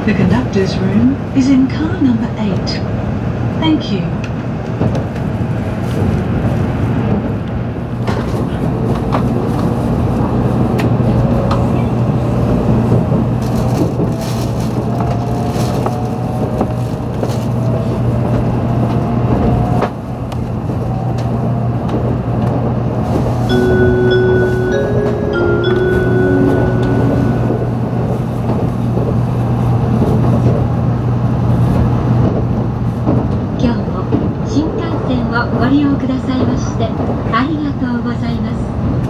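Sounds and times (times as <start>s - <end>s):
train running rumble and hum: 0.0s - 39.0s
melodic chime: 23.5s - 27.9s.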